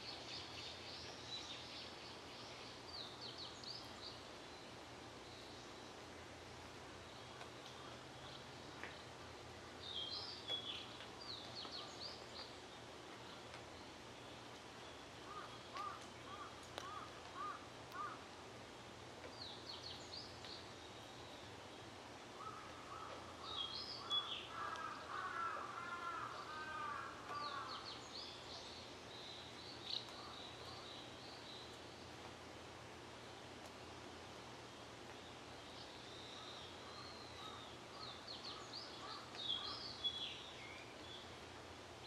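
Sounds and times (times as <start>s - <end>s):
lower bird calls: 14.3s - 18.4s, 22.3s - 31.8s, 35.3s - 41.3s.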